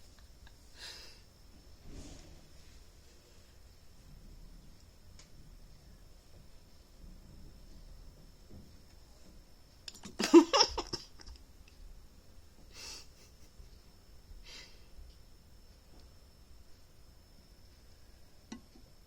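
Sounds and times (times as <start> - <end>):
soft breathy hisses: 0.7 - 3.7, 12.6 - 13.5, 14.4 - 15.0.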